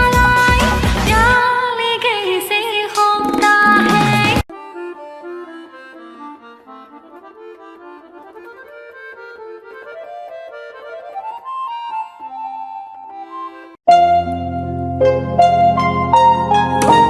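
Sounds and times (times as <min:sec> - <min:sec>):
loud song: 0:03.0 - 0:04.4
reedy instrumental melody: 0:03.0 - 0:17.0.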